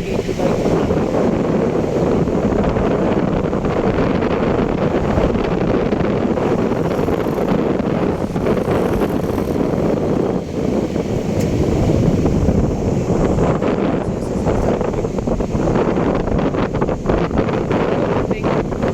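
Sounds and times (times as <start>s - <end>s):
moving vehicle rumble: 0.0s - 18.9s
wind buffeting microphone: 0.0s - 18.9s.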